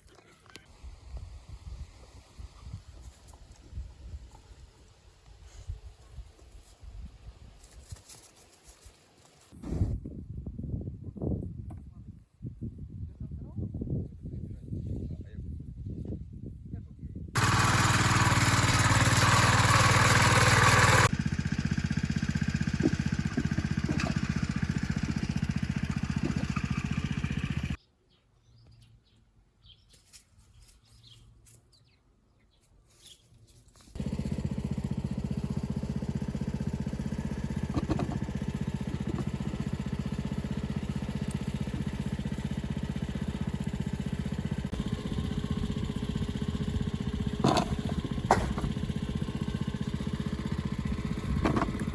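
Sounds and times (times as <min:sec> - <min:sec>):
engine running: 0:17.4 - 0:27.8, 0:33.9 - 0:51.9.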